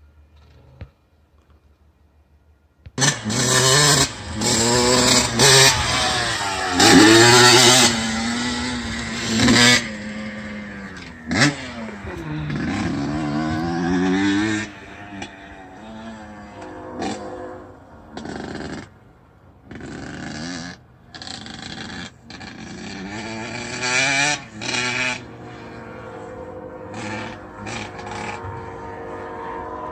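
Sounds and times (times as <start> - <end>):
motorcycle engine revving: 2.9 - 29.9.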